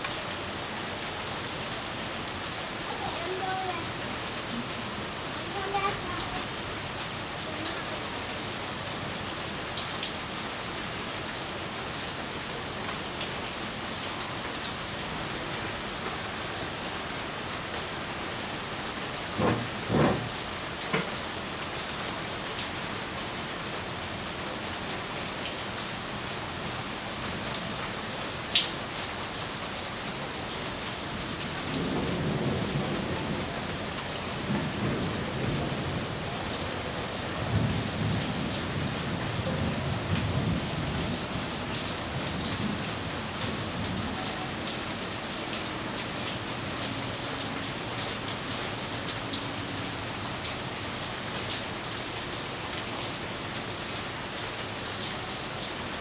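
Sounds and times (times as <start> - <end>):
rain on foliage and pavement: 0.0 - 56.0
distant thunder rumbling: 19.4 - 20.4.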